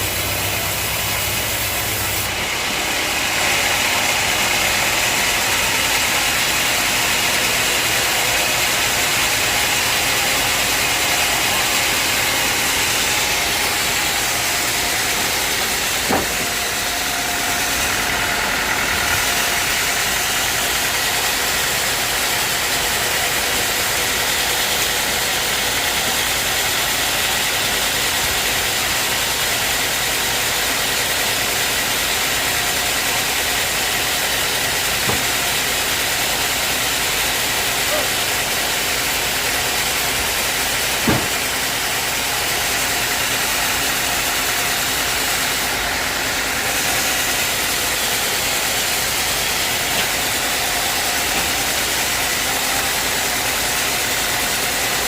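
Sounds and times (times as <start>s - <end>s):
sawmill machinery whine and hum: 0.0s - 55.0s
sharp knock: 16.0s - 16.6s, 35.0s - 35.5s, 41.0s - 41.4s.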